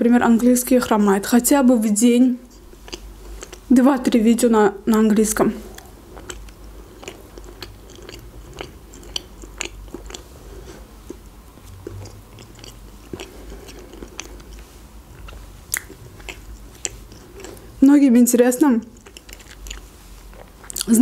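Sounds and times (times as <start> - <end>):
person chewing: 2.4 - 3.7, 5.6 - 17.8, 18.8 - 21.0
wet mouth clicks and smacks: 11.1 - 17.6.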